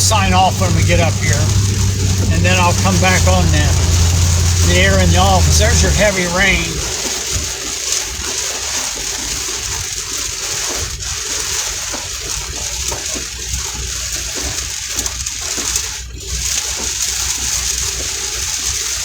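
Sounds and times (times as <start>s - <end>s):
heavy rain on vehicle roof: 0.0s - 7.0s.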